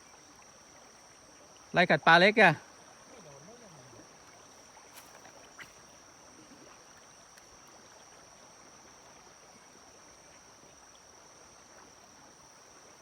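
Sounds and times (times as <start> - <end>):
insect drone: 0.0 - 13.0
stream water flowing: 0.0 - 13.0.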